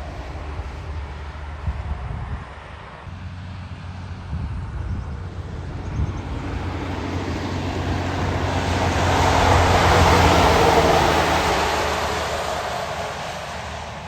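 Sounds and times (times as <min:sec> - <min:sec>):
truck engine drone: 0:00.0 - 0:14.0
tyres hissing on wet road: 0:06.3 - 0:14.0.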